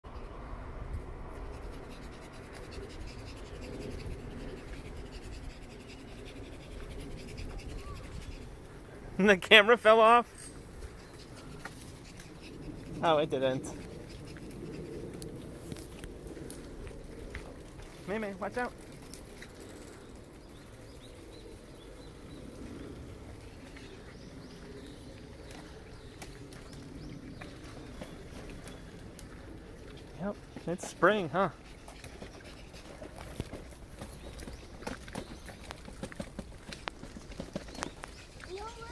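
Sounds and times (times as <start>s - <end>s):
steady low rumble: 0.1s - 30.6s.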